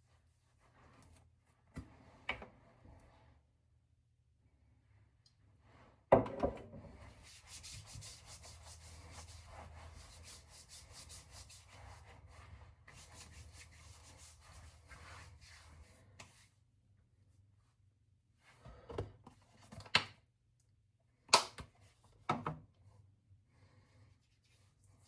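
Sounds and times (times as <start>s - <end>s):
scratchy rubbing strokes: 7.0s - 16.1s.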